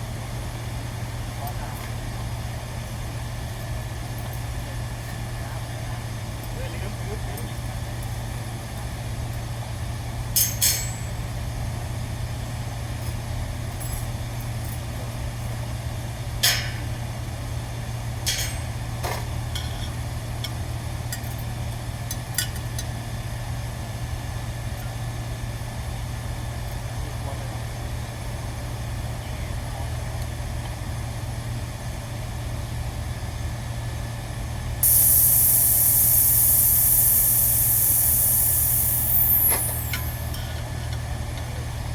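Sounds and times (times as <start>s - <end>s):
low machinery hum: 34.6s - 41.9s
loud air hiss: 34.8s - 40.4s.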